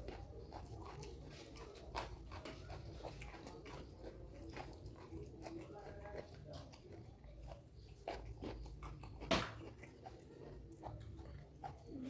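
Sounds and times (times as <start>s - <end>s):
chewing with wet smacks: 0.0s - 12.0s
crunchy bite: 0.0s - 12.0s.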